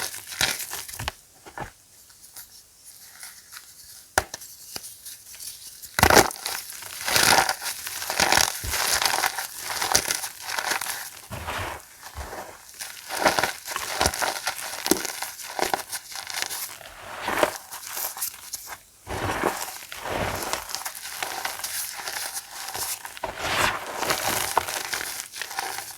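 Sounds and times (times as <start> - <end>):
chalk blocks crunching by hand: 6.0 - 25.9.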